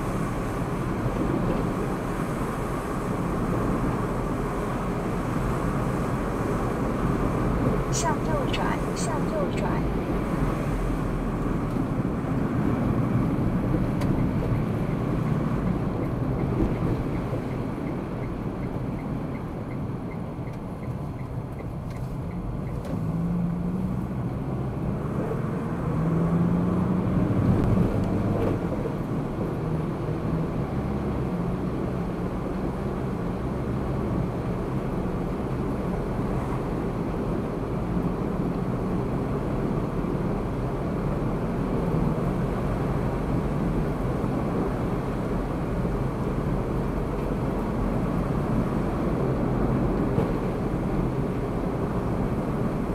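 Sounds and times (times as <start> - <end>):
car engine hum: 0.0 - 52.9
road noise: 0.0 - 52.9.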